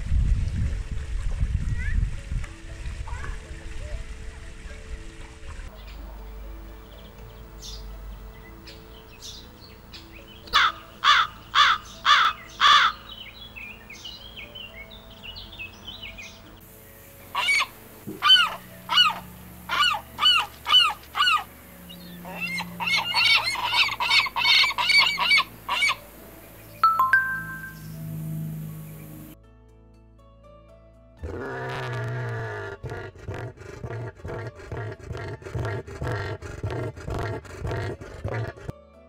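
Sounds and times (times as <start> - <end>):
lapwing calling: 8.6 - 16.5, 17.1 - 26.8
crow cawing: 10.6 - 13.0, 17.4 - 21.5.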